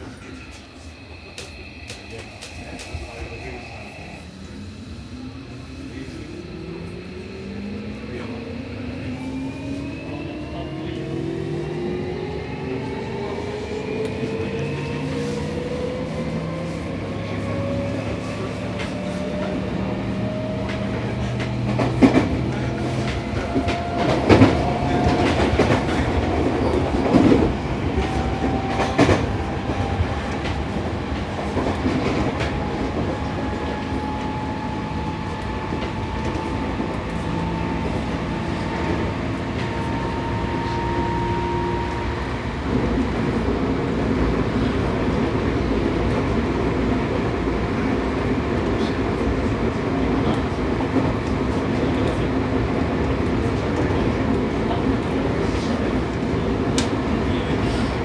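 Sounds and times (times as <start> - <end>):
rail-joint clacks: 20.6 - 34.3.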